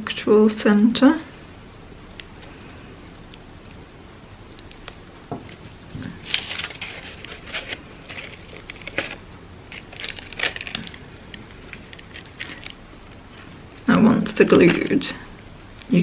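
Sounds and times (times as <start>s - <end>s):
crepe paper rustling and crinkling: 4.6s - 15.2s.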